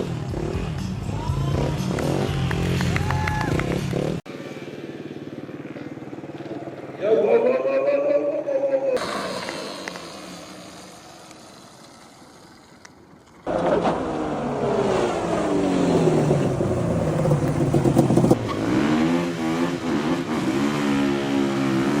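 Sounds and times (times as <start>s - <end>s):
motorcycle engine revving: 0.0s - 3.0s, 3.6s - 7.5s, 13.5s - 22.0s.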